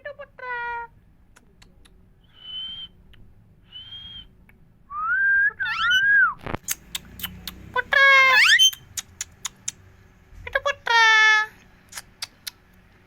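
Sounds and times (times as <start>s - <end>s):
parrot whistling: 5.0s - 8.8s
parrot harsh call: 5.6s - 6.2s, 7.7s - 8.8s
parrot gliding calls: 6.8s - 8.8s.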